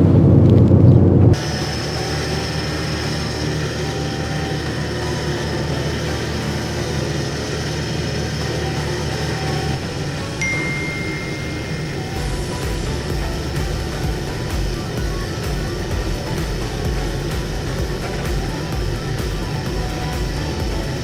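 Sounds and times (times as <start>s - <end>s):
road noise: 0.0s - 21.0s
truck engine running: 0.0s - 21.0s
thin high steady tone: 10.2s - 21.0s.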